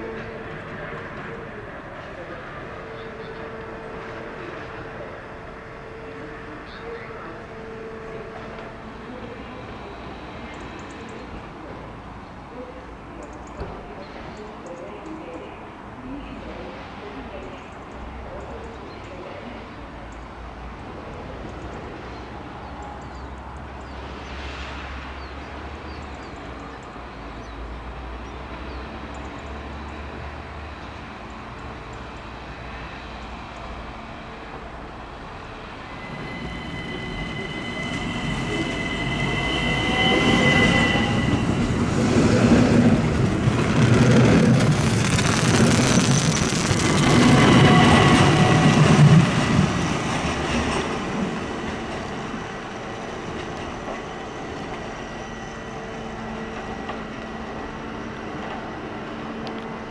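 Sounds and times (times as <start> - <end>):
train rolling slowly: 0.0 - 59.9
high wheel squeal: 35.6 - 42.9, 45.3 - 49.4.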